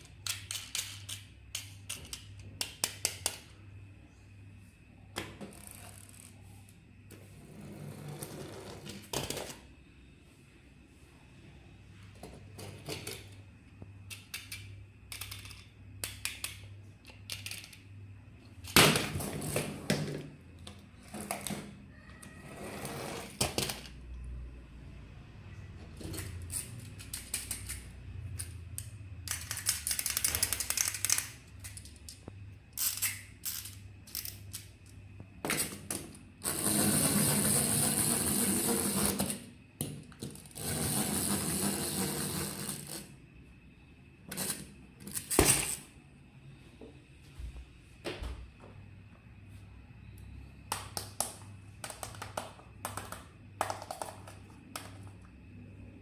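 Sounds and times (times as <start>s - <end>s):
plastic clicks and rattles: 14.1s - 17.8s, 28.4s - 34.7s
electric toy whirring: 36.4s - 39.5s, 40.4s - 43.1s.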